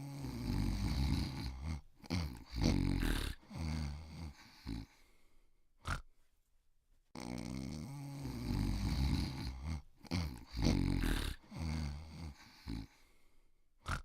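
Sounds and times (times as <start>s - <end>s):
deep rough vocal sounds: 7.2s - 12.9s.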